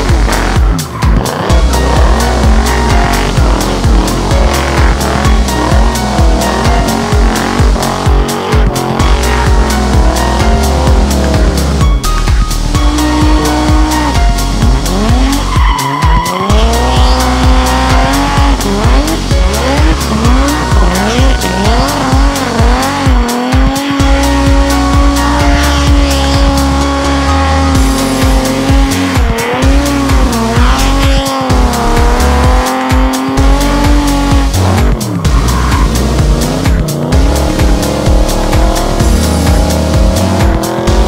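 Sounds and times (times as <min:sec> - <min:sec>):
background music with steady beat: 0:00.0 - 0:41.0
car engine revving: 0:00.0 - 0:41.0
tyres squealing: 0:12.8 - 0:40.8.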